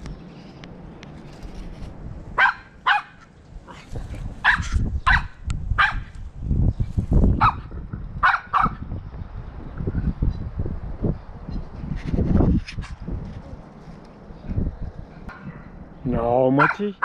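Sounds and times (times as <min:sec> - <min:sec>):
dog barking: 0:02.4 - 0:03.2, 0:04.4 - 0:06.1, 0:07.4 - 0:08.8, 0:16.6 - 0:16.9.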